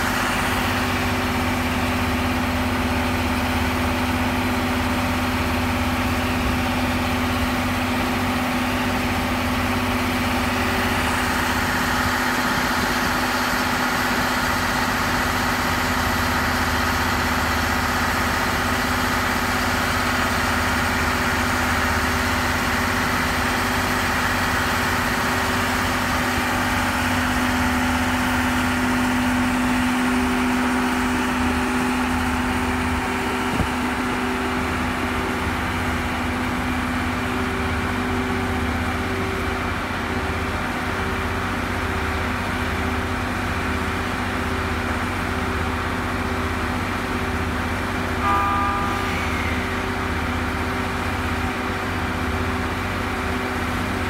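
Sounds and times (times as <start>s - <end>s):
train machinery humming at idle: 0.0s - 54.0s
steady tones: 48.2s - 50.8s.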